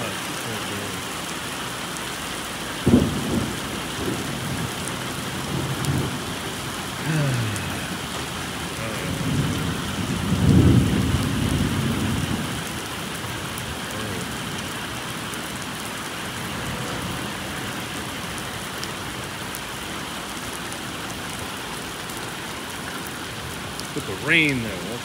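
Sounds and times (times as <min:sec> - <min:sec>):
heavy rain pouring: 0:00.0 - 0:25.0
low roll of thunder: 0:02.8 - 0:06.4, 0:07.9 - 0:12.6.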